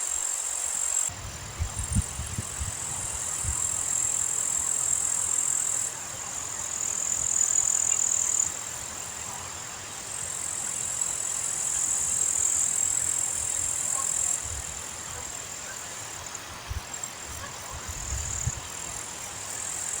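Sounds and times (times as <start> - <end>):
high-pitched wind hiss: 0.0 - 20.0
wind buffeting microphone: 1.1 - 4.0, 16.6 - 18.9.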